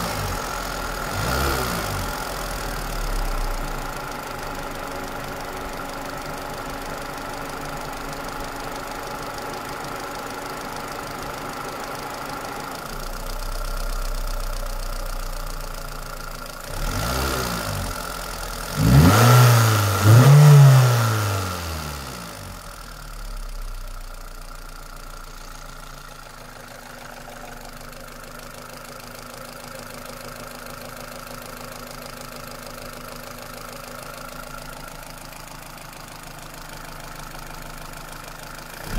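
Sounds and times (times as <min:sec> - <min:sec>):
car engine idling with knock: 0:22.4 - 0:38.9.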